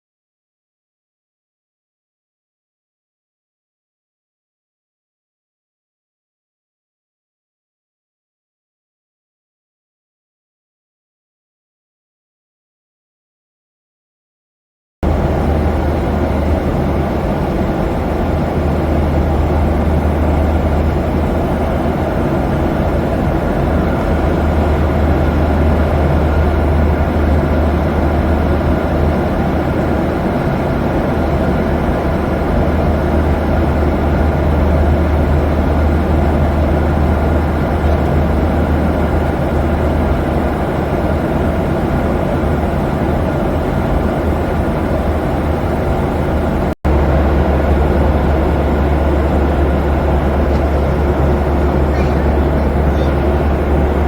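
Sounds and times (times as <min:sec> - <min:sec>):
low vehicle drone: 0:15.0 - 0:54.0.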